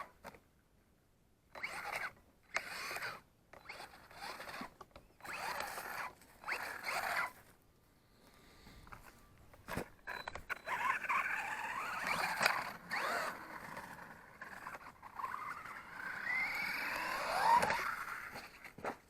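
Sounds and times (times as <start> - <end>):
toy truck electric motor whining: 1.5 - 7.5, 9.8 - 18.8.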